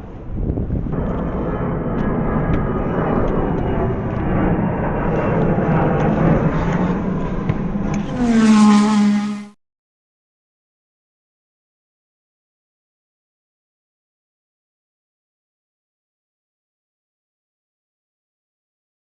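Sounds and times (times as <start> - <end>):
engine revving: 4.5 - 9.6.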